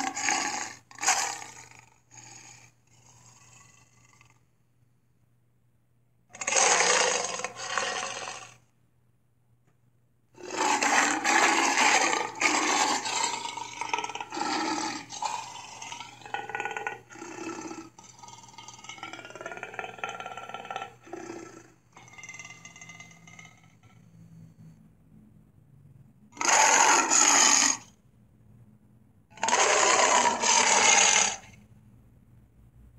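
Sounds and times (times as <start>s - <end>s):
cartoon dinosaur roars: 0.0s - 4.4s, 6.3s - 8.6s, 10.4s - 24.0s, 26.4s - 27.9s, 29.3s - 31.6s.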